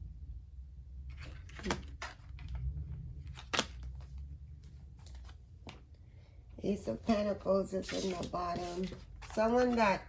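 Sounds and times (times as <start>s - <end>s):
cards snapping and rustling: 1.2s - 2.6s, 3.3s - 4.2s.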